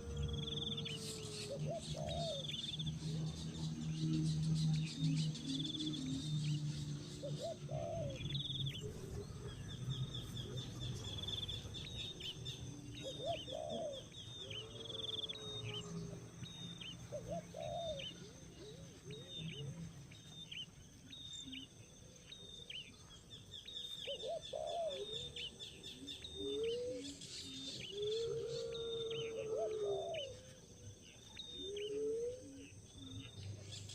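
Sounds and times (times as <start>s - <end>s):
small birds chirping: 0.0s - 33.9s
lower bird call: 23.6s - 33.9s.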